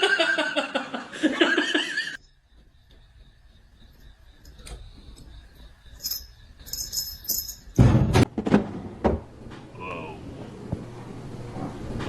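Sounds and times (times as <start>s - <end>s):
light metallic jingling: 3.8s - 7.8s
loud thumps: 7.7s - 9.4s.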